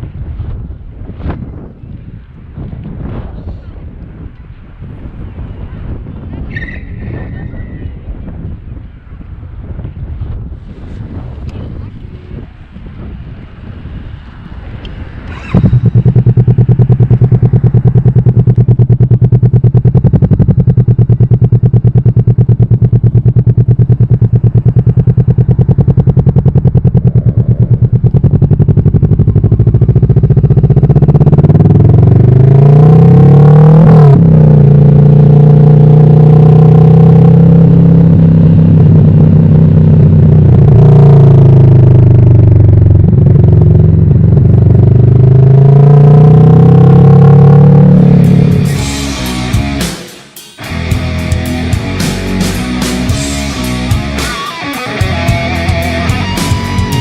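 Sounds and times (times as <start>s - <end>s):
motorcycle engine revving: 12.2s - 57.0s.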